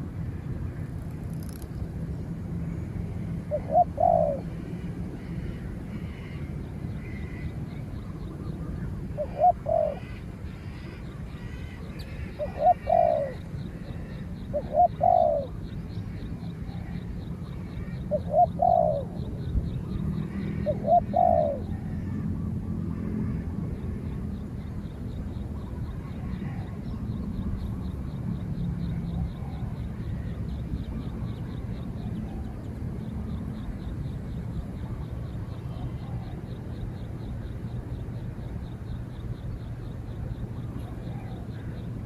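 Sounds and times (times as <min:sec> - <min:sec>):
steady low hum: 0:00.0 - 0:42.0
dove cooing: 0:03.4 - 0:06.4, 0:09.1 - 0:15.7, 0:17.7 - 0:19.3, 0:20.1 - 0:22.4, 0:28.9 - 0:30.3, 0:31.4 - 0:32.7, 0:35.5 - 0:36.6, 0:40.8 - 0:41.8.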